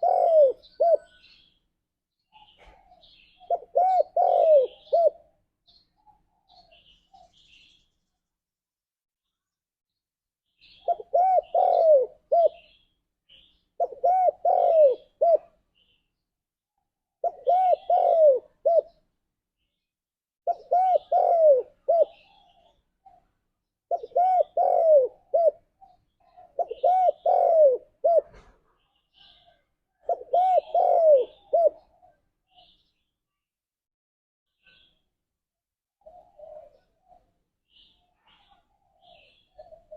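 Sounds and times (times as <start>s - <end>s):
dove cooing: 0.0s - 1.2s, 2.4s - 5.4s, 10.7s - 12.8s, 13.8s - 15.6s, 17.2s - 19.0s, 20.4s - 23.3s, 23.9s - 28.6s, 29.2s - 32.8s, 36.0s - 39.9s.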